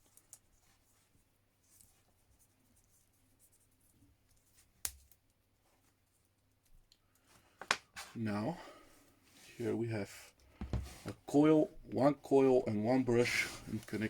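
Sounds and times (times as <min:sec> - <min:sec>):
wires rustling: 0:09.0 - 0:14.0.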